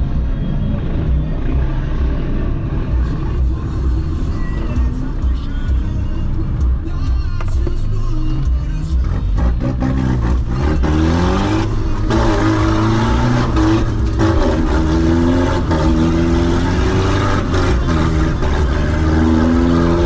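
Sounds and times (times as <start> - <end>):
vehicle engine revving: 7.5 - 20.0.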